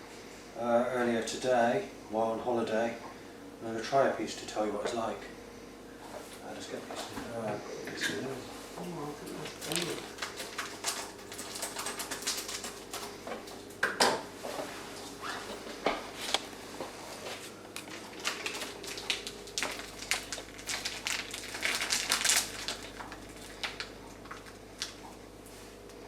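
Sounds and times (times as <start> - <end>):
wrapper crinkling: 9.6 - 13.1, 17.7 - 25.0.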